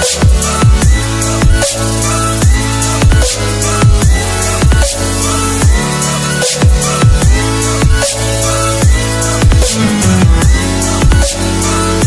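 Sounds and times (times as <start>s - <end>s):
dubstep music: 0.0s - 12.0s
heavy kick drum: 8.8s - 11.3s.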